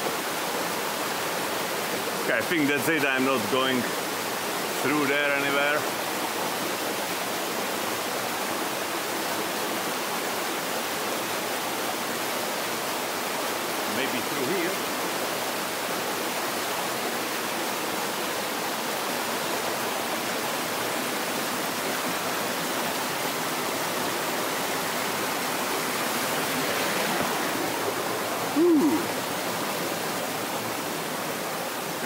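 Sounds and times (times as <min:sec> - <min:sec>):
stream and waterfall rushing: 0:00.0 - 0:32.0
short voice sound: 0:28.5 - 0:29.2.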